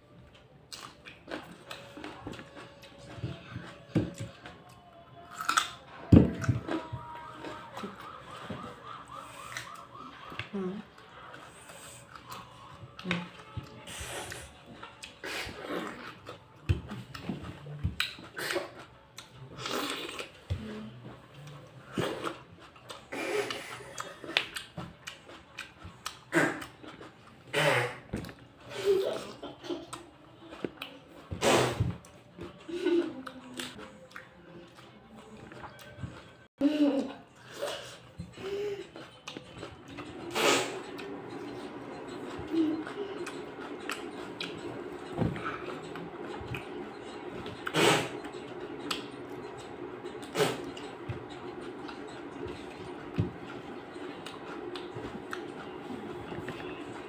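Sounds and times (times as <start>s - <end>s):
chewing with short crunches: 0.3s - 8.0s, 8.7s - 20.5s, 21.1s - 28.7s, 37.4s - 57.0s
person biting and chewing tomato: 5.2s - 7.6s
steady low hum: 37.4s - 57.0s.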